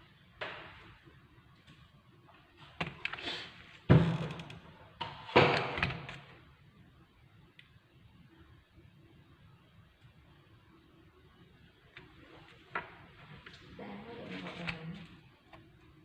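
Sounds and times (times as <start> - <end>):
knocks and thuds: 3.9 - 4.4.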